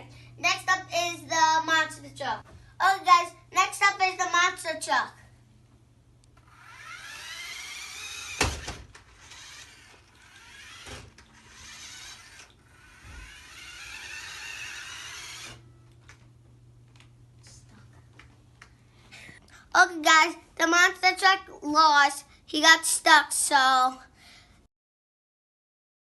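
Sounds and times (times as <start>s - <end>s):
toy truck electric motor whining: 6.4s - 15.7s.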